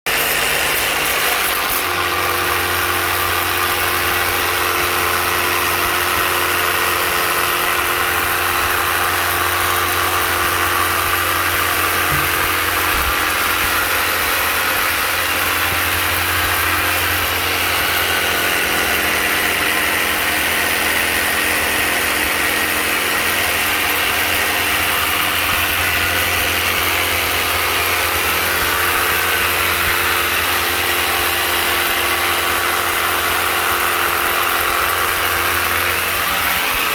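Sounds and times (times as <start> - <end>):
pressure washer motor hum: 0.0 - 36.9
water spray hissing: 0.1 - 3.2, 7.9 - 31.3.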